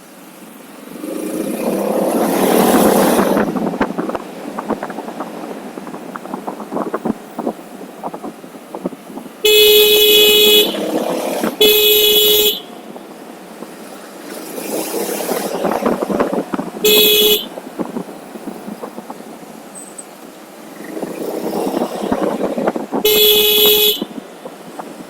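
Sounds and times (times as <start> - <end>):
wind and road noise: 0.0 - 25.0
vehicle horn honking: 9.4 - 11.0, 11.6 - 12.9, 16.8 - 17.6, 23.0 - 24.2.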